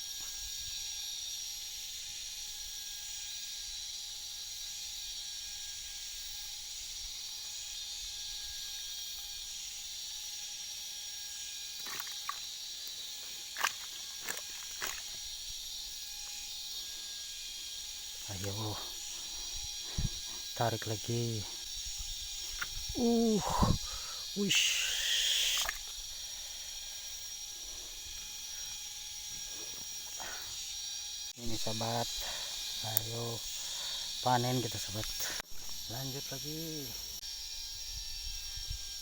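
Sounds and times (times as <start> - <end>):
forest insects droning: 0.0 - 39.0.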